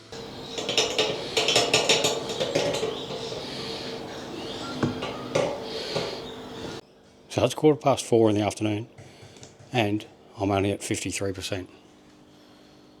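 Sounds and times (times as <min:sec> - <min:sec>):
steady hum: 0:00.0 - 0:06.8
hard objects clinking together: 0:00.1 - 0:03.6.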